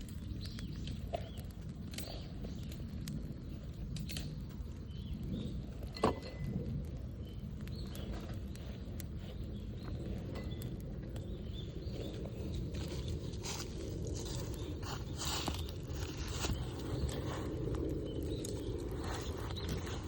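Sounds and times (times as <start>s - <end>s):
campfire crackling: 0.0s - 20.0s
low outdoor rumble: 0.0s - 20.0s.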